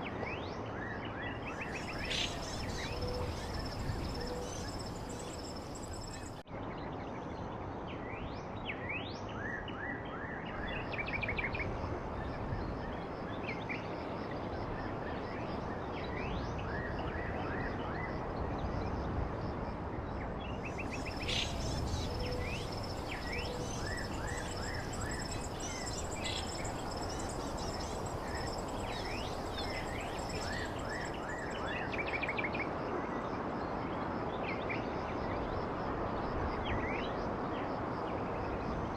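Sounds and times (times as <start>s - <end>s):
small birds chirping: 1.5s - 6.4s, 20.7s - 31.9s
background hiss: 1.6s - 6.4s, 20.7s - 31.6s.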